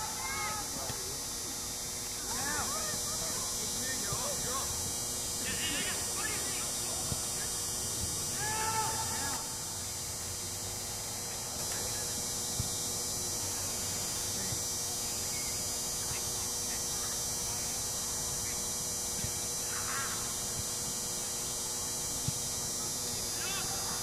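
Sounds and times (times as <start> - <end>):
outdoor hiss and hum: 0.0 - 24.0
faint distant shout: 8.3 - 9.6.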